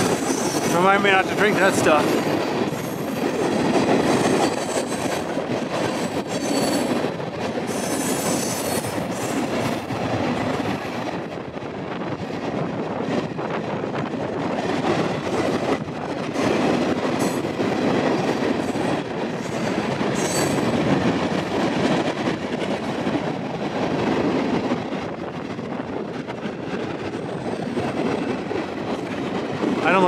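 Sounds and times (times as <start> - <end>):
train wheels rumbling on rails: 0.0 - 30.0
high wheel squeals: 6.4 - 6.9.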